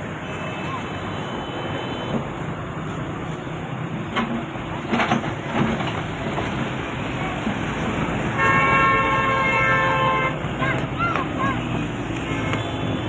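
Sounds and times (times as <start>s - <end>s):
excavator diesel engine running: 1.0s - 9.0s.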